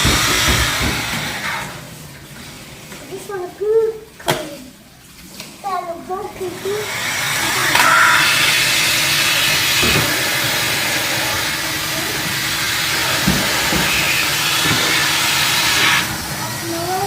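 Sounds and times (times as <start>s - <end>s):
vacuum cleaner running: 0.0s - 1.9s, 6.4s - 17.0s.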